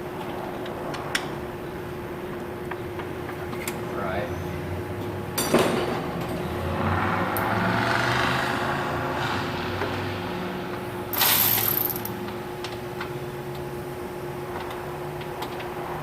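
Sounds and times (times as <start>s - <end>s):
steady hum: 0.0s - 6.6s
ratchet wrench clicking: 11.2s - 12.2s.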